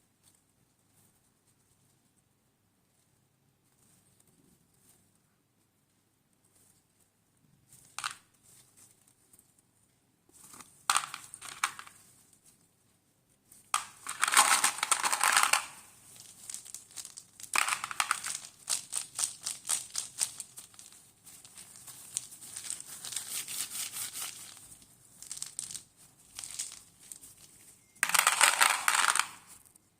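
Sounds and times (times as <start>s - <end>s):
mothballs crunching: 13.8s - 23.4s, 24.2s - 27.4s.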